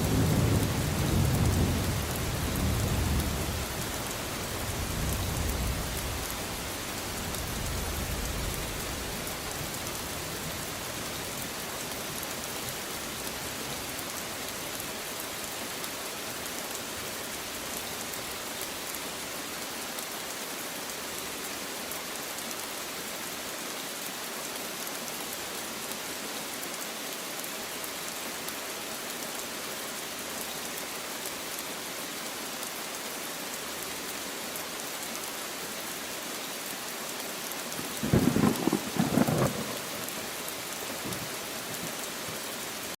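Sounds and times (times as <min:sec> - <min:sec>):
rain falling on leaves: 0:00.0 - 0:43.0
thunder rumble: 0:38.0 - 0:39.9.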